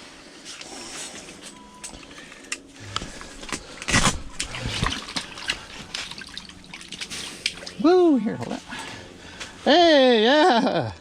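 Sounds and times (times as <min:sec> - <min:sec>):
water splashing: 0:04.2 - 0:08.0.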